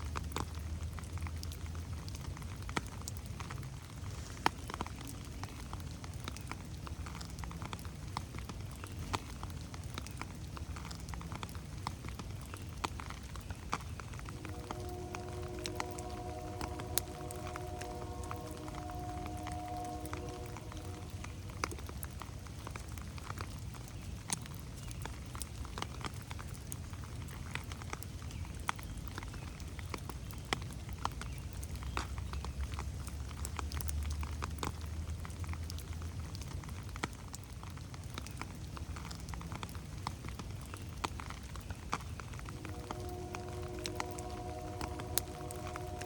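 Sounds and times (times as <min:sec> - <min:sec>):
raindrops pattering on foliage: 0:00.0 - 0:46.0
low rumble: 0:14.2 - 0:22.8, 0:42.4 - 0:46.0.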